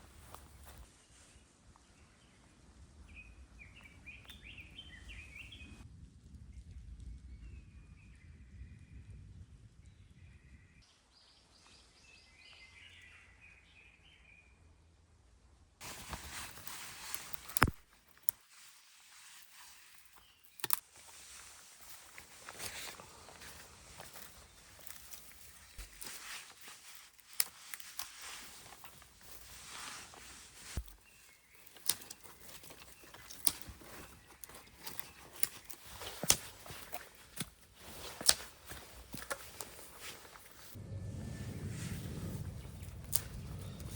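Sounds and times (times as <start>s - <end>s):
rustling in dry leaves: 0.0s - 1.6s, 15.8s - 43.9s
bird chirping: 3.1s - 5.8s, 27.6s - 43.9s
dry wood snapping: 15.8s - 40.8s, 42.5s - 43.9s.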